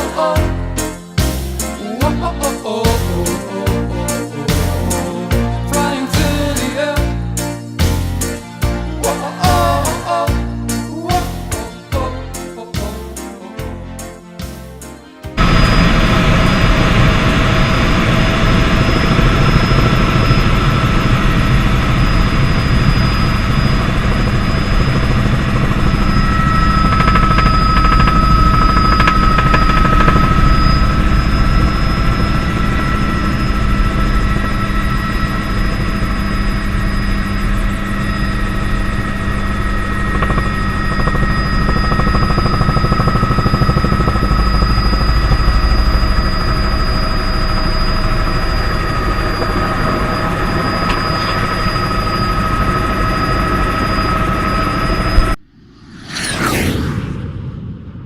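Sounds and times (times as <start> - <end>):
helicopter turbine and rotor noise: 15.3 - 57.2.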